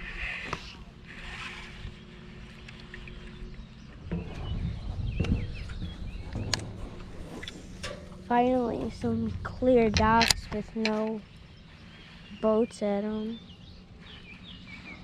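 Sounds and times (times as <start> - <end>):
low rumble: 3.1 - 14.9.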